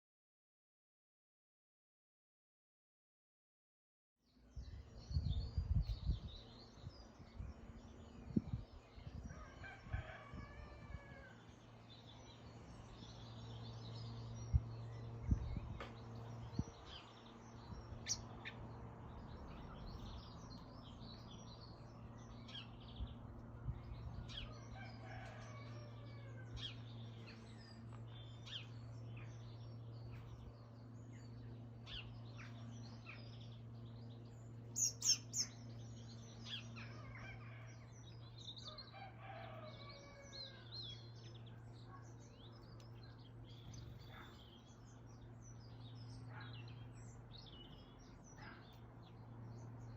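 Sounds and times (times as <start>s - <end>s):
small birds chirping: 4.3s - 10.4s, 11.2s - 49.9s
steady low hum: 4.5s - 49.9s
rooster crowing: 9.3s - 11.5s, 24.3s - 26.8s, 37.0s - 37.9s, 38.6s - 40.8s.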